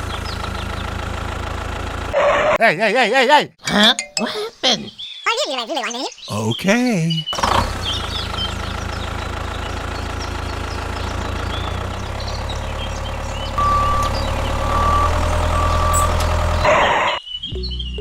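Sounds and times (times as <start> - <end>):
tractor engine running: 0.0 - 2.2, 7.4 - 17.0
reversing alarm beeps: 13.6 - 16.7.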